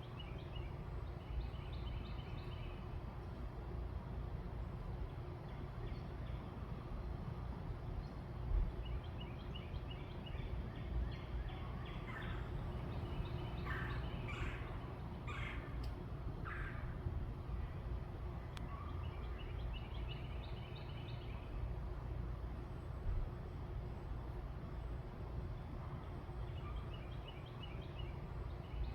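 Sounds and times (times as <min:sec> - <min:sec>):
birds calling: 0:09.8 - 0:17.0
steady low rumble: 0:10.2 - 0:20.7.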